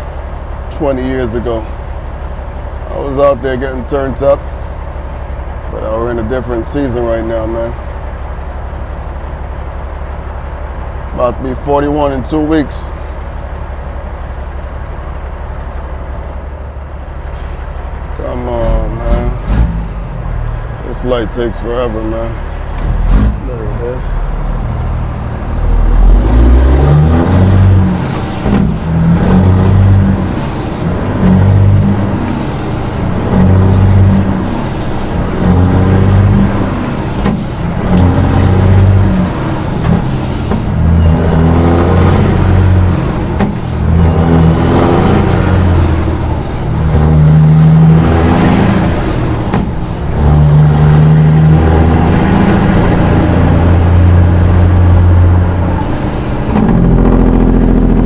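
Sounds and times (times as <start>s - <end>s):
truck diesel engine shifting gears: 0.0s - 58.0s.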